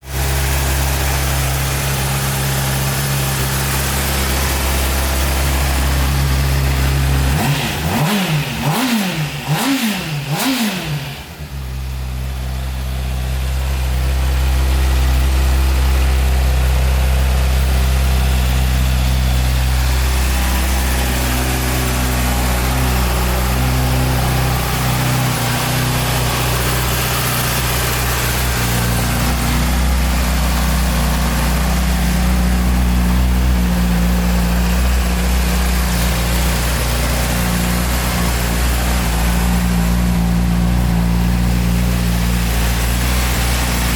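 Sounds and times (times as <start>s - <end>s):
engine revving: 0.0s - 43.9s
motorcycle engine idling: 0.0s - 43.9s.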